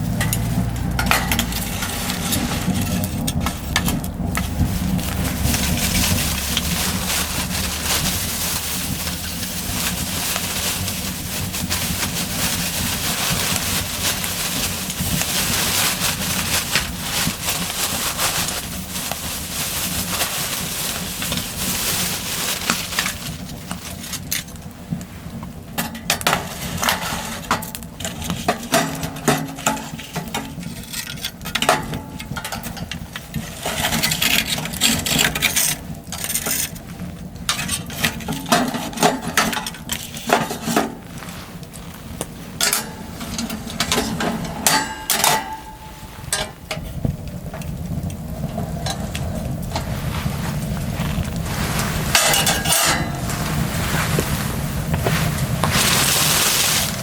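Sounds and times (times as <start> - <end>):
steady rushing noise: 0.0 - 23.6, 47.2 - 57.0.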